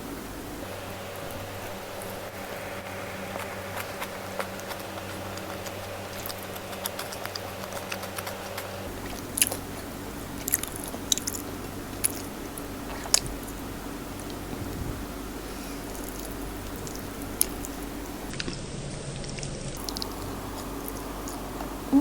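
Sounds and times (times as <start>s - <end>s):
chewing food with wet smacking: 0.6s - 22.0s
crisp crunching clicks: 1.2s - 13.6s, 19.2s - 21.7s.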